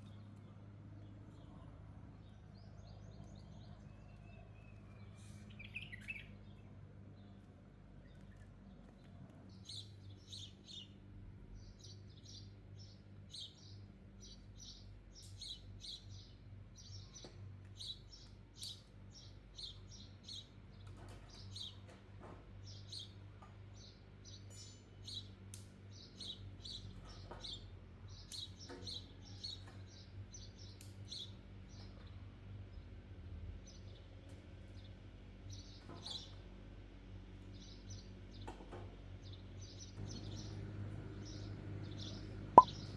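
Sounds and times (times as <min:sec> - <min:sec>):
small birds chirping: 0:00.0 - 0:21.9, 0:22.6 - 0:33.0.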